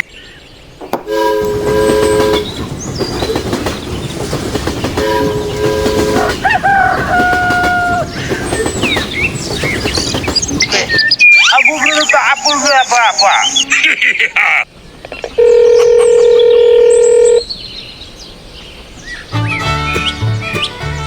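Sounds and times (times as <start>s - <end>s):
chord horn blasts: 1.0s - 2.6s, 4.9s - 8.1s
two-tone whistle: 1.0s - 2.6s.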